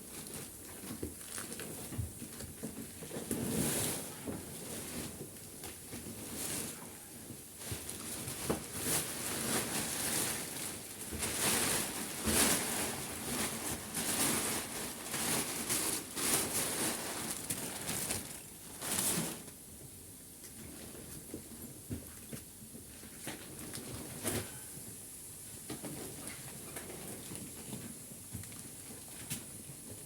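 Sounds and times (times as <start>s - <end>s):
plastic packaging rustling: 0.0s - 6.8s, 7.6s - 19.6s.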